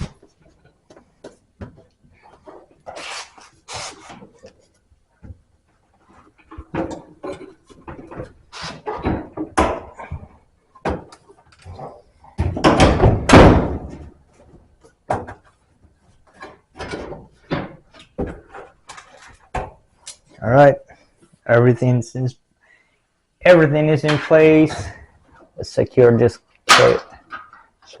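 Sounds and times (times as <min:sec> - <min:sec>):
sheet metal parts knocking and clunking: 0:05.2 - 0:15.6, 0:16.3 - 0:19.8.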